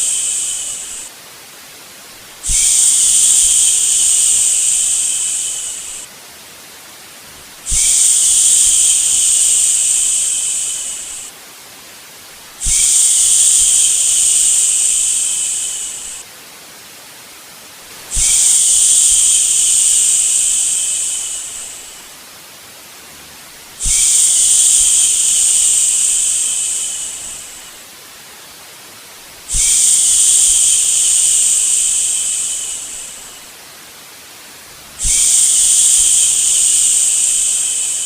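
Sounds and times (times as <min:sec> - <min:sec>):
person shushing: 0:00.0 - 0:01.1, 0:02.4 - 0:06.1, 0:07.3 - 0:11.3, 0:12.6 - 0:16.2, 0:18.1 - 0:22.0, 0:23.2 - 0:27.7, 0:34.9 - 0:38.0
white noise hiss: 0:00.0 - 0:38.0.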